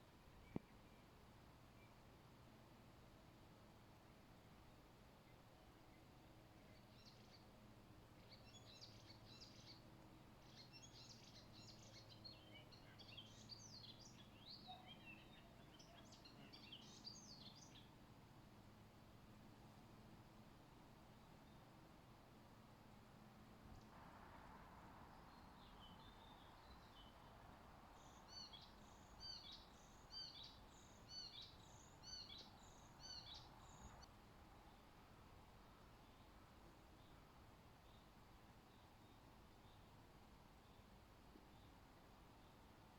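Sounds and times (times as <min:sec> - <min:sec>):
faint birdsong chirps: 0:00.0 - 0:24.0, 0:25.0 - 0:42.9
faint steady hiss: 0:00.0 - 0:42.9
bird chirping: 0:08.2 - 0:17.9, 0:28.0 - 0:34.8.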